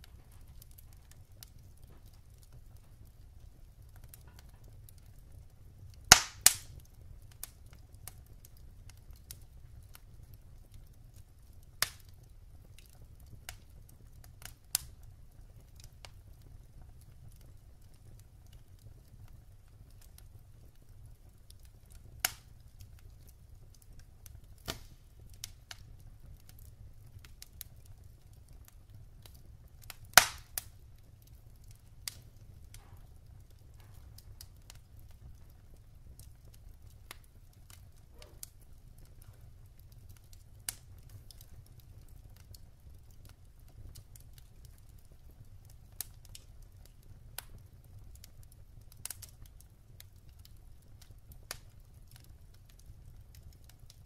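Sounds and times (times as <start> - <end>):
burning logs popping and snapping: 0.0 - 54.0
low fire rumble: 0.0 - 54.0.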